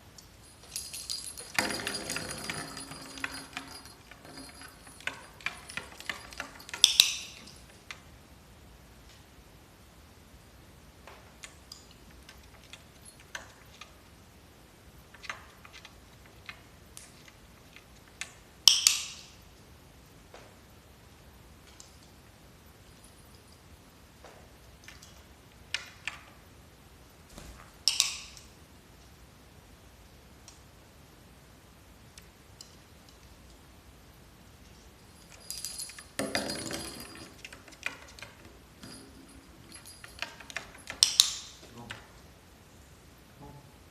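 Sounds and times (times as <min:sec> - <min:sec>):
small metal objects jingling: 0:00.3 - 0:07.9, 0:35.0 - 0:41.6.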